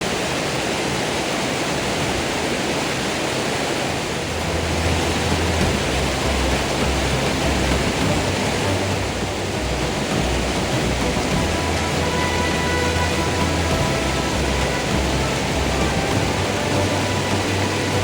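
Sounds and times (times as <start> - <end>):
rushing water: 0.0 - 18.0
deep bass music: 4.3 - 18.0.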